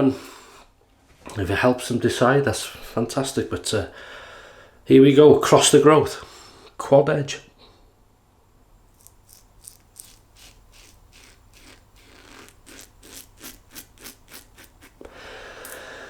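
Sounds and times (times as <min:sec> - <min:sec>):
razor scraping beard stubble: 0:08.9 - 0:15.8
steady hiss: 0:08.9 - 0:16.0.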